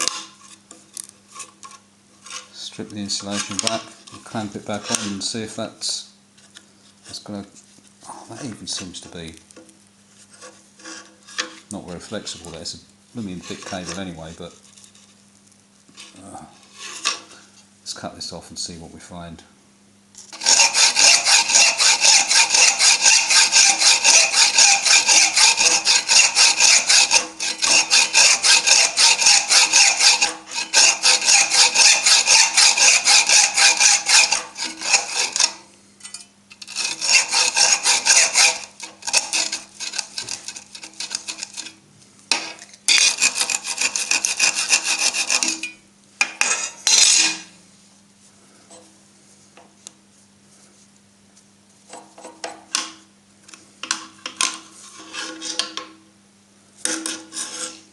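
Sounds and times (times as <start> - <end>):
saw rasping through cable: 0.0 - 0.5, 3.1 - 5.4, 10.3 - 11.7, 13.2 - 14.2, 16.7 - 17.4, 20.3 - 35.7, 36.6 - 47.6, 53.8 - 55.8, 56.8 - 57.9.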